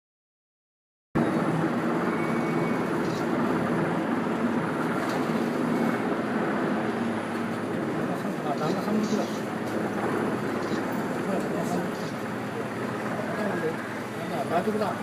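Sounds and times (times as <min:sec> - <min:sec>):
helicopter hovering: 0:01.2 - 0:15.0.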